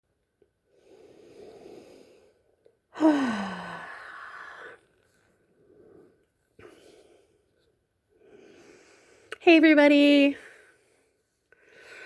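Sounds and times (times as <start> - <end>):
person breathing in softly: 0.7 - 9.4, 10.4 - 12.0
person sighing: 3.0 - 4.8.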